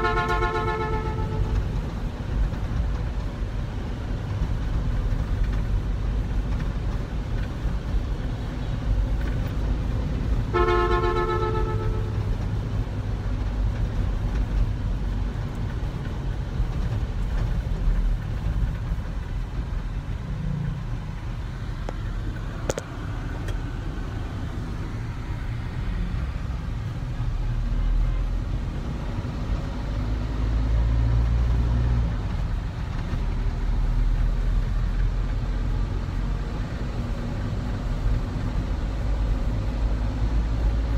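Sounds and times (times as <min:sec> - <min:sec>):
car horn honk: 0:00.0 - 0:01.6, 0:10.5 - 0:12.3
vehicle rumbling on road: 0:00.0 - 0:40.9.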